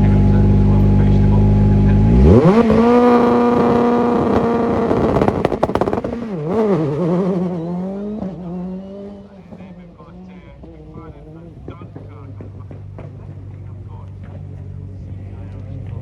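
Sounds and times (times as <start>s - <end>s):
rally car engine revving: 0.0s - 16.0s
engine exhaust pops: 2.5s - 7.6s, 10.6s - 14.8s.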